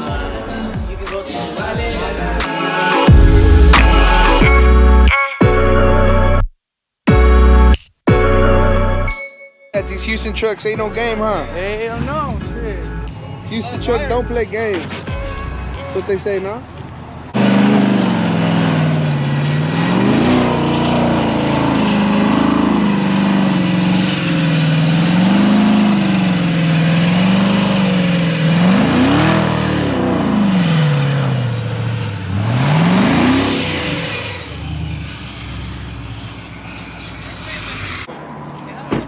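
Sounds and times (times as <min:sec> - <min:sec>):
vehicle engine revving: 0:03.1 - 0:04.8, 0:16.6 - 0:38.8.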